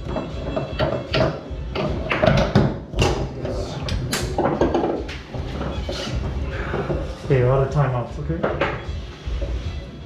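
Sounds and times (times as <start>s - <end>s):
foosball ball clacking: 0.0s - 7.2s
foosball rods rattling: 0.0s - 7.3s.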